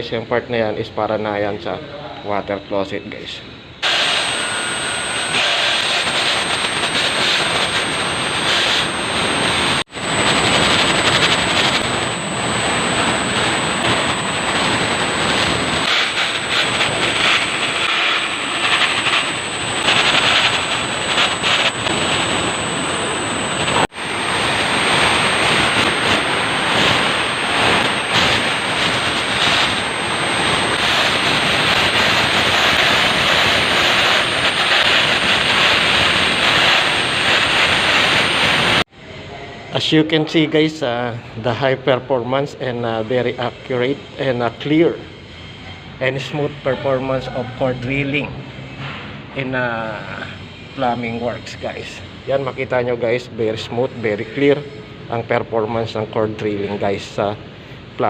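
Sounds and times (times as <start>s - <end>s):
core drill grinding concrete: 3.8s - 38.8s.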